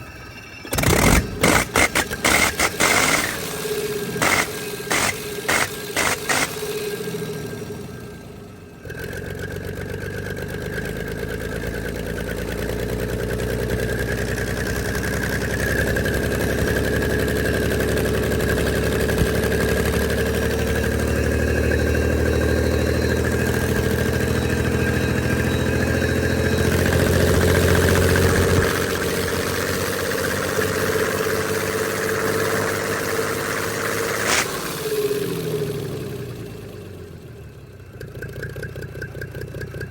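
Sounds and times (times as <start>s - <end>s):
diesel engine running: 0.0s - 39.9s
sharp click: 0.8s - 3.4s, 4.2s - 6.6s, 34.2s - 34.6s.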